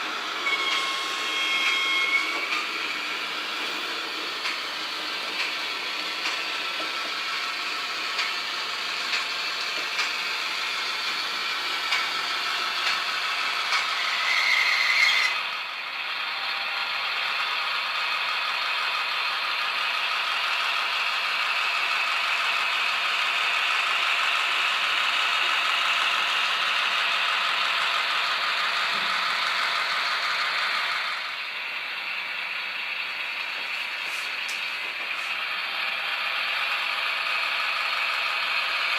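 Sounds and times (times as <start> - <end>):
model locomotive speaker sound: 0.0 - 10.2
motor and gears whirring: 0.0 - 17.0.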